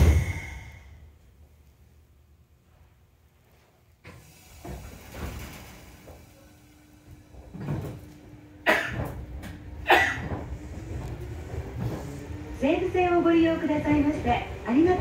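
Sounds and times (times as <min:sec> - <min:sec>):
sharp loud bang: 0:00.0 - 0:00.9
train steady hum: 0:00.0 - 0:15.0
train car clunks and knocks: 0:07.1 - 0:12.3.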